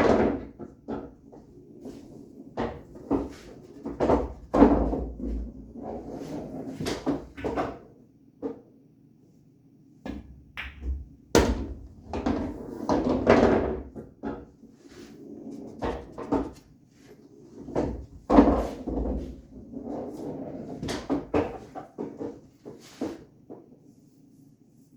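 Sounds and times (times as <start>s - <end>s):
pool balls clacking: 0.0s - 8.6s, 10.1s - 14.7s, 15.4s - 16.7s, 17.5s - 23.7s
balls thudding against cushions: 10.1s - 12.4s.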